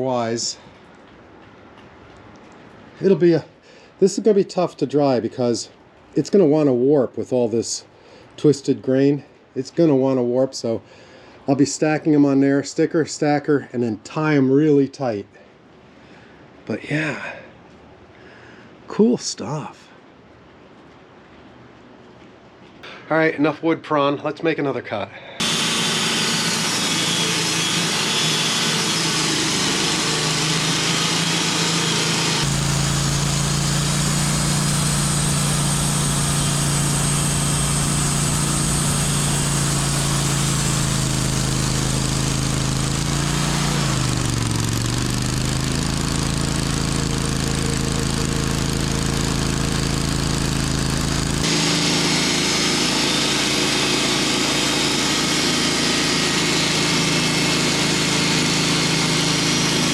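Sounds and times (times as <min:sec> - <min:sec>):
sawmill engine sawing log: 0:25.4 - 0:59.9.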